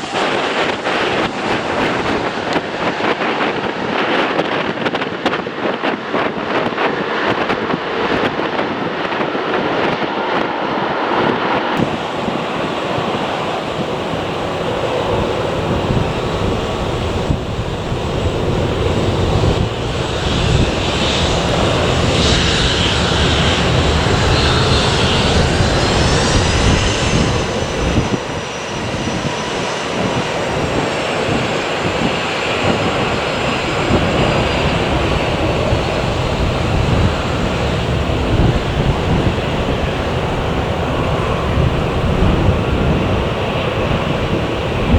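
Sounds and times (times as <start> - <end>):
jet engines rushing and whining: 6.2 - 44.9
wind buffeting microphone: 11.8 - 44.9.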